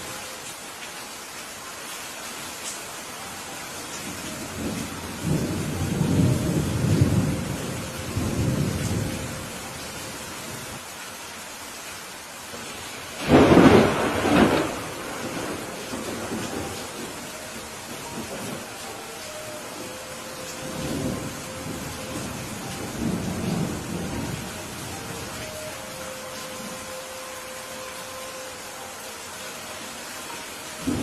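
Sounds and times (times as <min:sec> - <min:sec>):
steady rain hiss: 0:00.0 - 0:31.0
low rolling thunder rumble: 0:04.4 - 0:09.6, 0:13.2 - 0:18.7, 0:19.8 - 0:25.4
loud thunderclap: 0:13.2 - 0:16.4.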